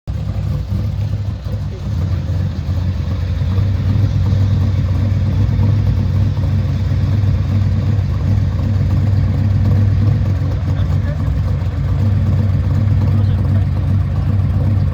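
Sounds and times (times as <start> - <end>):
car engine running: 0.0 - 14.9.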